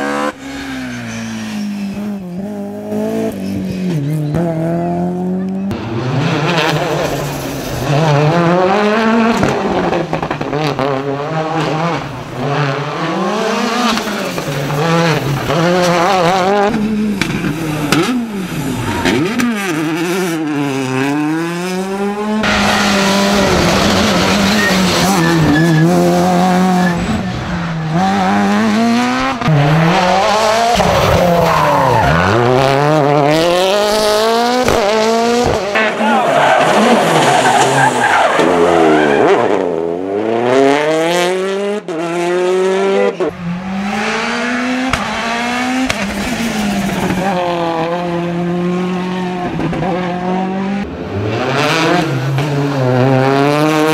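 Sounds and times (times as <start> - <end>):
rally car engines revving: 0.0 - 53.9.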